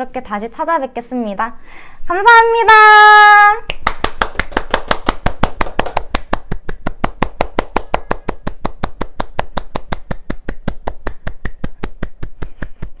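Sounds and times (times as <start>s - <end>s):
person clapping hands: 3.7s - 13.0s.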